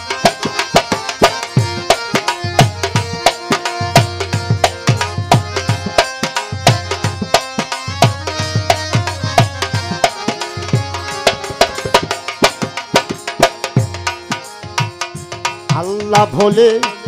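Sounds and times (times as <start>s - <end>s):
held chords: 0.0s - 17.0s
tabla playing quick rhythm: 0.0s - 17.0s
person singing: 15.7s - 17.0s.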